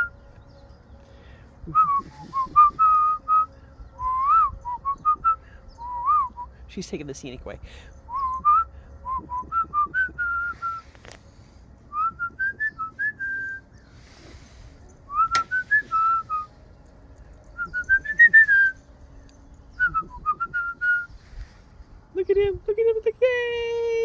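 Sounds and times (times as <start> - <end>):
person whistling: 1.7 - 6.5, 8.1 - 10.8, 11.9 - 13.6, 15.1 - 16.5, 17.6 - 18.8, 19.8 - 21.1.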